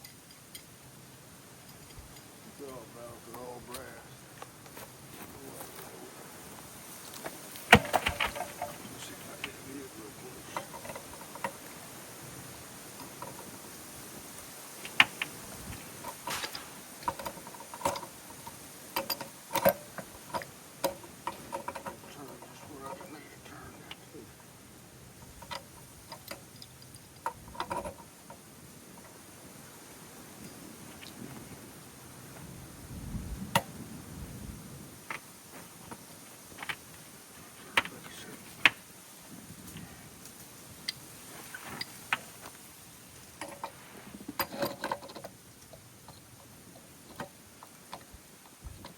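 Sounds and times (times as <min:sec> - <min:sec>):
hand tools clinking on metal: 0:01.6 - 0:11.9, 0:14.8 - 0:24.1, 0:43.3 - 0:48.1.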